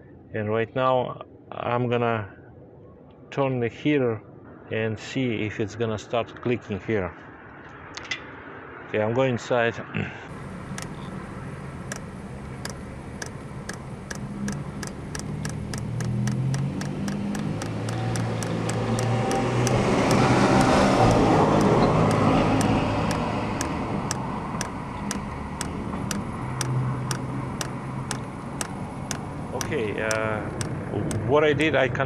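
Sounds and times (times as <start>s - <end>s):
fuel pump ticking: 10.3s - 31.3s
low hum: 10.3s - 31.8s
passing vehicle: 10.3s - 32.0s.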